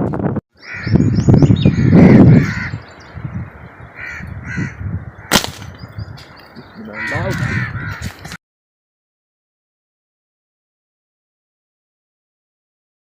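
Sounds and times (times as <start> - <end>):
harsh crow-like bird calls: 0.6 - 8.3
sharp snap: 5.3 - 5.8.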